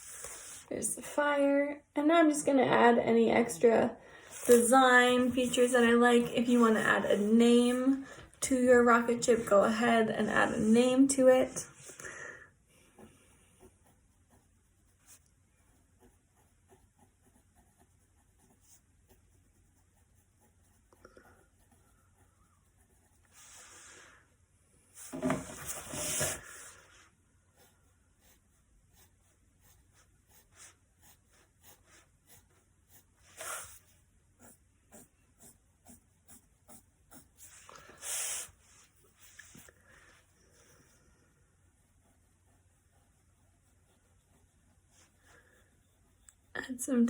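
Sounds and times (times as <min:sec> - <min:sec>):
rubbing noises: 0:04.2 - 0:11.9, 0:24.9 - 0:40.7
pen scratching on paper: 0:04.4 - 0:11.7, 0:12.9 - 0:23.8, 0:25.0 - 0:26.8, 0:27.5 - 0:39.7, 0:41.6 - 0:47.0.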